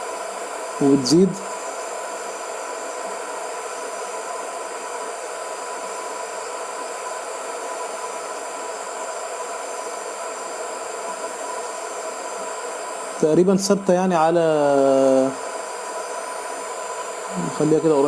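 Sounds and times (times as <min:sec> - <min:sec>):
heat gun blowing air: 0:00.0 - 0:18.0.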